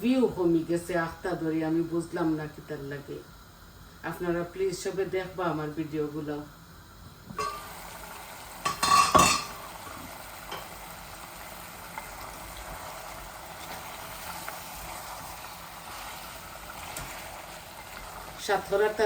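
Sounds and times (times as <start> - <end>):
curry sizzling in a pot: 0.0 - 19.0.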